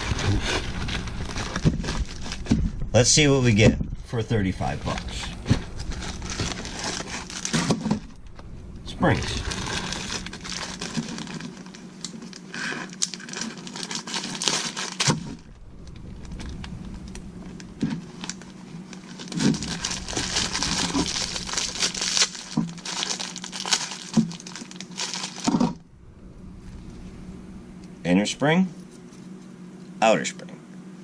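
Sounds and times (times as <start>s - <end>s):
packaging crinkling: 0.0s - 2.8s, 4.6s - 25.8s.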